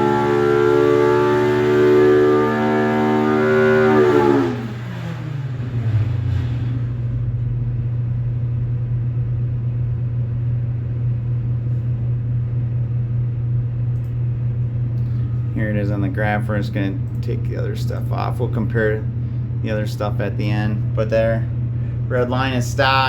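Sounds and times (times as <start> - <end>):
engine revving then idling: 0.0 - 9.2.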